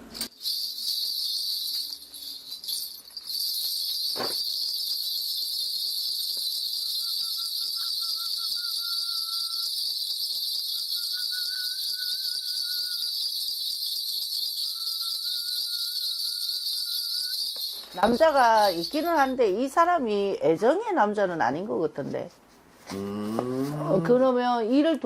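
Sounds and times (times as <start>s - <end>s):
bells jingling: 0.0s - 20.3s
faint wavering whistle-like tone: 6.3s - 18.3s.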